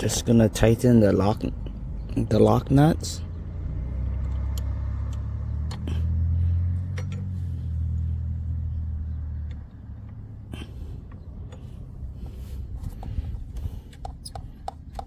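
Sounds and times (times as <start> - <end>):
wrench clicking: 13.9 - 15.0.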